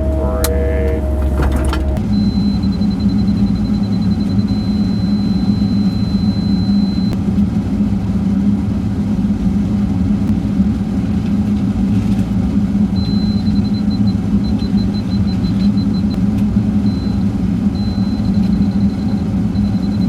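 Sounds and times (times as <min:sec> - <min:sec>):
diesel engine running: 0:00.0 - 0:11.2.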